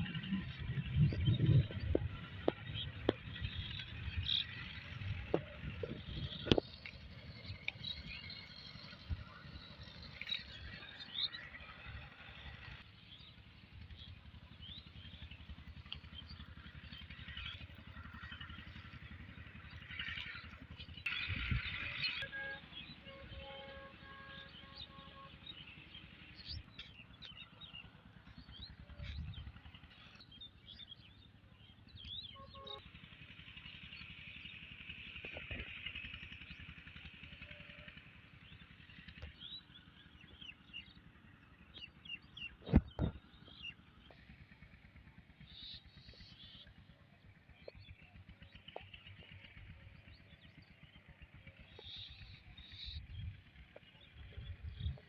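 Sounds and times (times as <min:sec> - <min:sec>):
low rumble: 0:00.0 - 0:06.6.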